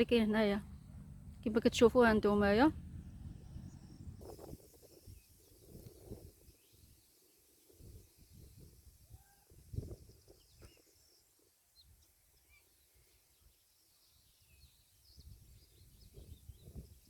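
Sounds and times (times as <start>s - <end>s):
low rumbles: 0.0s - 4.6s
bird chirps: 2.8s - 17.0s.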